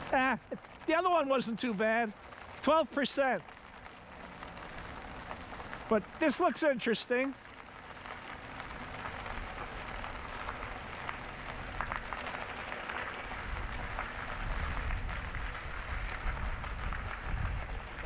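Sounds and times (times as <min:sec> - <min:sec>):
wind and tyres rushing: 0:07.4 - 0:18.0
wind buffeting microphone: 0:08.5 - 0:18.0.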